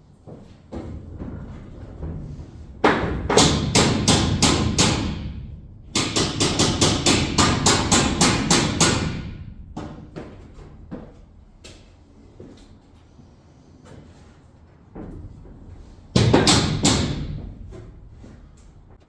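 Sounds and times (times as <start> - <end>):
hammer striking metal: 3.4 - 5.4, 6.0 - 9.5.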